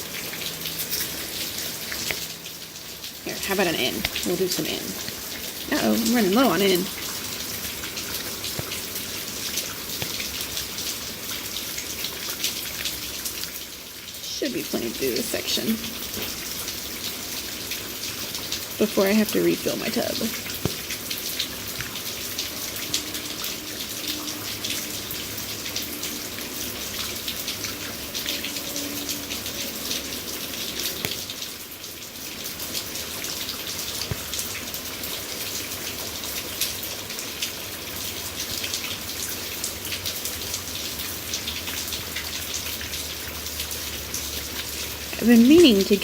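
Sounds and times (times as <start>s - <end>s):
heavy rain pouring: 0.0s - 46.0s
raindrops ticking close by: 0.0s - 46.0s.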